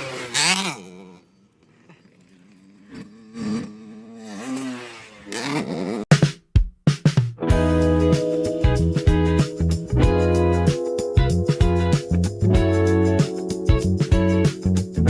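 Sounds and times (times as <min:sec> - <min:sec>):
dirt bike engine revving: 0:00.0 - 0:06.2.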